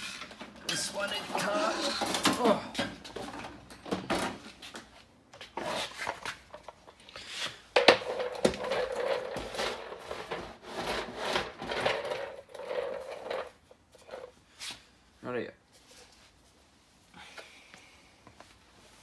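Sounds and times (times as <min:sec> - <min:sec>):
trolley scraping and knocking: 0:00.0 - 0:04.5, 0:07.8 - 0:14.3
casters rolling: 0:07.8 - 0:14.3.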